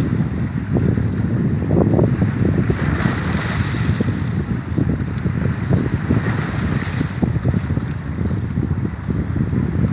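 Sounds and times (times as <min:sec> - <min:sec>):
gusty wind buffeting microphone: 0:00.0 - 0:09.9
waves breaking on shore: 0:02.1 - 0:08.2.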